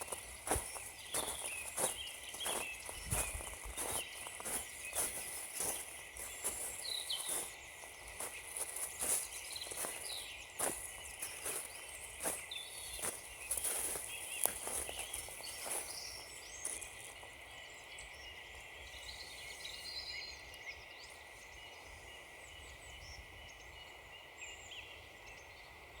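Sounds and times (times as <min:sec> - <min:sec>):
footsteps crunching on frozen ground: 0:00.0 - 0:17.4
small birds singing: 0:00.0 - 0:26.0.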